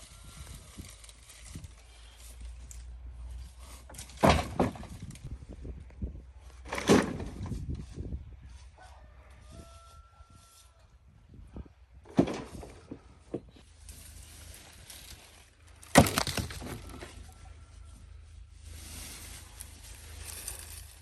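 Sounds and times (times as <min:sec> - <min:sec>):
wood splintering crack: 0:15.8 - 0:17.1.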